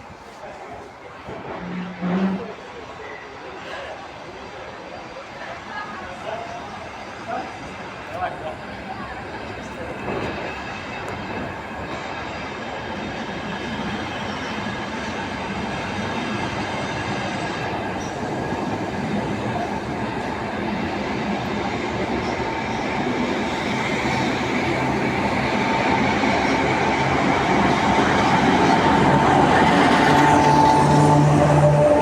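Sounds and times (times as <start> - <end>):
diesel train engine under load: 0.0 - 3.7, 5.8 - 32.0
train cars rolling on rails: 7.6 - 32.0.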